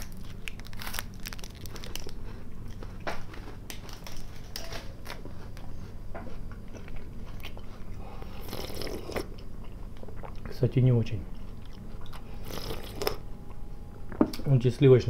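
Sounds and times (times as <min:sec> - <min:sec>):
crunching wafer candy: 0:00.0 - 0:05.2.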